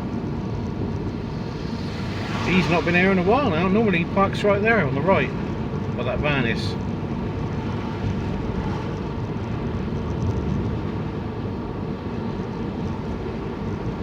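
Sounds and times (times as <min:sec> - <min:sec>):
tyres on wet road: 0:00.0 - 0:14.0
wind rushing: 0:00.2 - 0:05.8.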